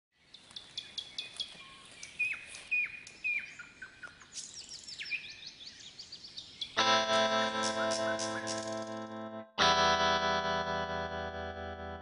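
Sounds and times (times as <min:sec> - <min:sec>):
birds chirping: 0:00.2 - 0:09.3.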